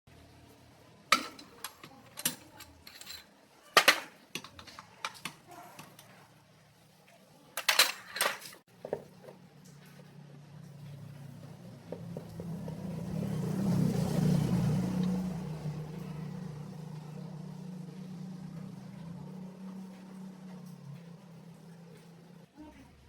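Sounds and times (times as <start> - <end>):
metal tools clanking: 1.1 - 6.1, 7.6 - 8.6.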